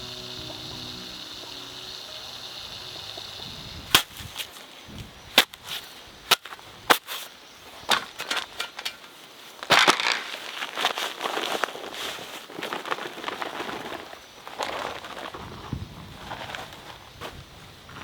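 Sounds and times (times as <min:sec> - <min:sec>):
high-pitched hiss: 0:00.0 - 0:07.9.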